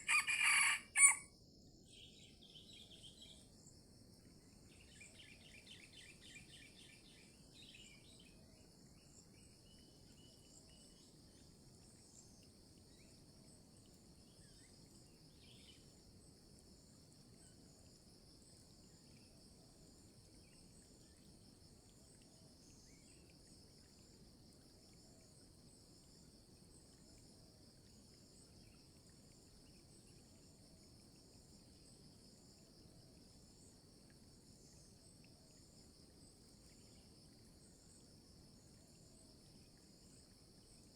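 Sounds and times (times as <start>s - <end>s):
insects trilling: 0.0s - 1.3s.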